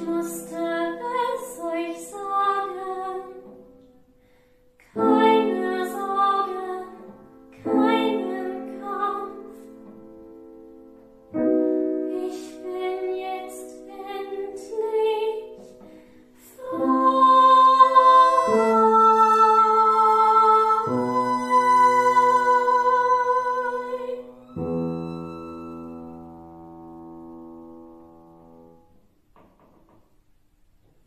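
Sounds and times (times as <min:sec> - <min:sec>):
woman singing a slow song: 0:00.0 - 0:03.6, 0:04.8 - 0:09.7, 0:12.0 - 0:24.4
piano chords ringing: 0:04.9 - 0:29.1.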